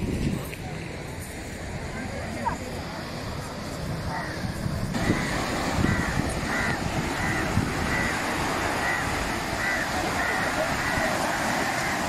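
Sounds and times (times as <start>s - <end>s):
wind and surf rushing: 0.0s - 12.0s
bird calling: 4.1s - 12.0s.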